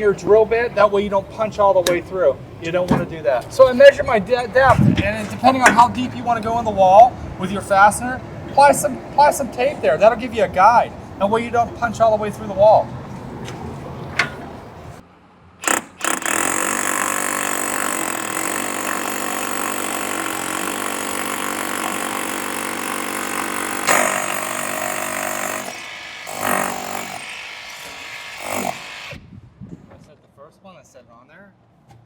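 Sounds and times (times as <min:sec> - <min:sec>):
power drill boring into masonry: 0:15.6 - 0:29.2.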